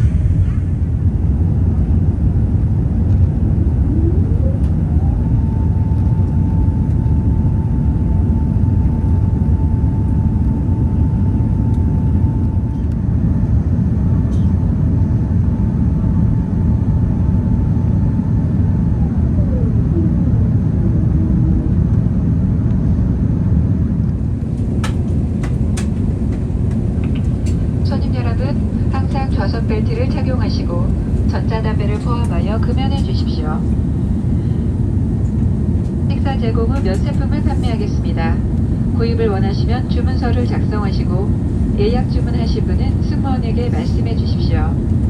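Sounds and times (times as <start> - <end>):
aircraft cabin engine rush: 0.0 - 45.0
mechanical whine: 2.6 - 22.5.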